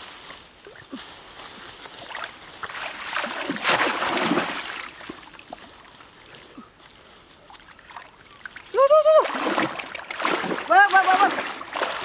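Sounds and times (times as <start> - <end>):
water splashing and sloshing: 0.0 - 6.2, 7.1 - 12.0.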